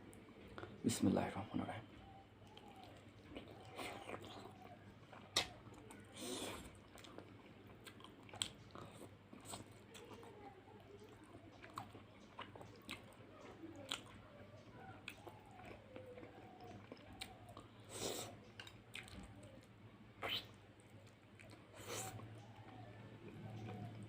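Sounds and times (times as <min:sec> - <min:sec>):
person chewing food: 0:00.0 - 0:00.8, 0:02.1 - 0:24.0
mouth clicks and smacks: 0:05.1 - 0:09.7, 0:15.0 - 0:22.8.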